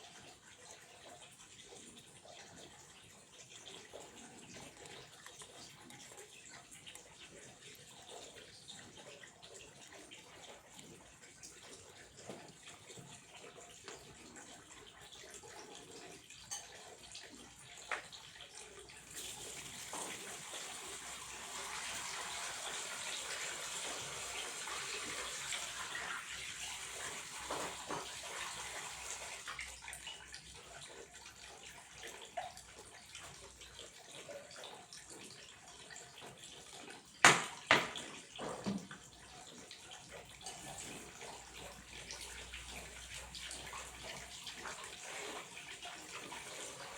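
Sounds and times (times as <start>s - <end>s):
flowing water: 0.0s - 46.9s
sharp knocks: 37.2s - 38.0s.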